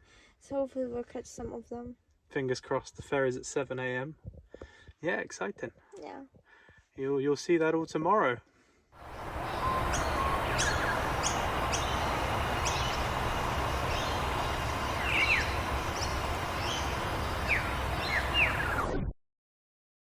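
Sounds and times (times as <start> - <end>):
downward-gliding calls: 9.0 - 19.0
outdoor background noise: 9.0 - 19.0.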